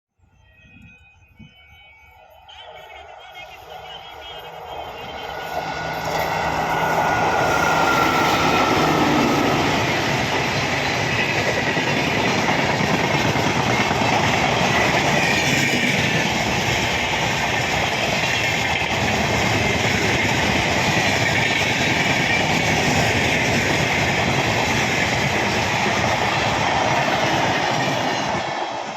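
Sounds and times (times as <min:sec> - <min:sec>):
high wheel squeal: 0:00.4 - 0:11.4
train wheels rumbling on rails: 0:02.4 - 0:28.9.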